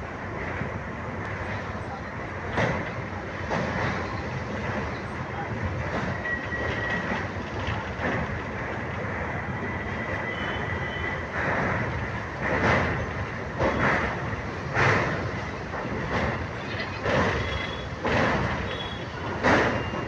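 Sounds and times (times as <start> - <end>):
train wheels rumbling on rails: 0.0 - 20.0
faint wheel squeal: 17.4 - 17.9.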